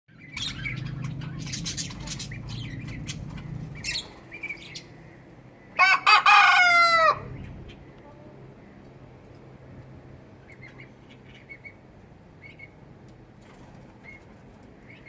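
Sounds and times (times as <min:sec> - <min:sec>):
small birds chirping: 0:00.1 - 0:05.8, 0:10.3 - 0:15.0
rooster crowing: 0:05.8 - 0:07.4.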